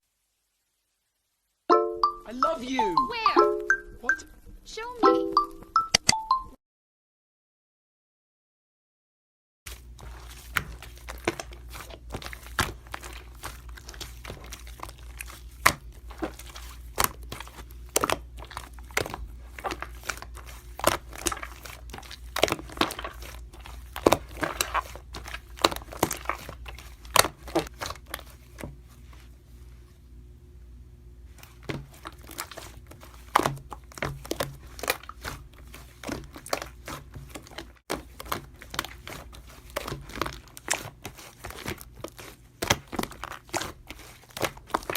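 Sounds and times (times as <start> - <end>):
slime crackling and popping: 9.7 - 28.9, 31.3 - 44.9.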